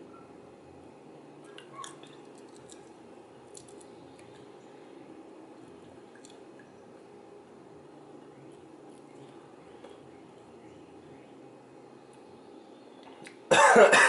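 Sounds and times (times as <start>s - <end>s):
faint steady hum: 0.0s - 14.0s
person chewing with wet clicks: 1.4s - 4.6s, 5.6s - 6.7s, 13.0s - 13.4s.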